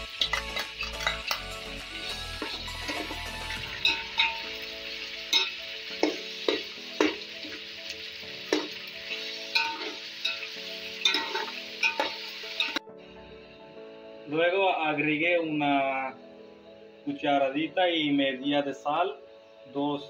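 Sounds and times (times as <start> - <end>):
chicken sizzling in oil: 0.0 - 12.8
metal spoon scraping pot: 0.1 - 1.5, 9.6 - 12.8.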